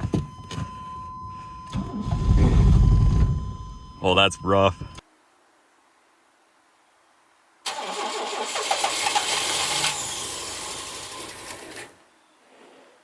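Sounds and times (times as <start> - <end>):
engine starter cranking: 1.7 - 3.0, 7.7 - 12.0.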